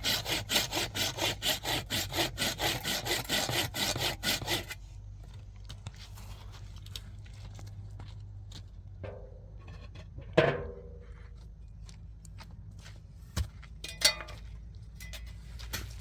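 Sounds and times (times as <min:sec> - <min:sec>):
steady low hum: 0:00.0 - 0:16.0
knocks and clinks of hard objects: 0:13.8 - 0:15.9.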